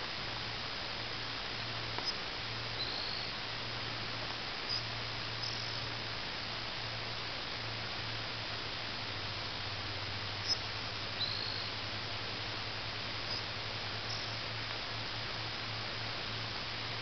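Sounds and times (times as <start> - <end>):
background hiss: 0.0 - 17.0
faint low hum: 0.0 - 17.0
small bird chirps: 2.8 - 3.3, 11.2 - 11.7, 14.1 - 14.4.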